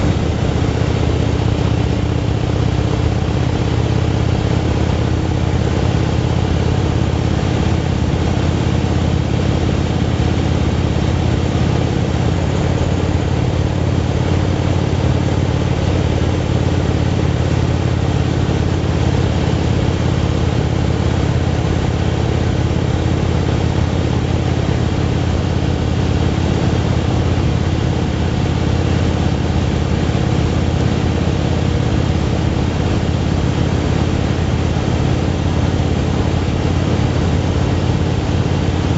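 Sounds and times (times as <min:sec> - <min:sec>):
motorcycle engine cruising: 0:00.0 - 0:38.9
wind and road noise: 0:00.0 - 0:38.9.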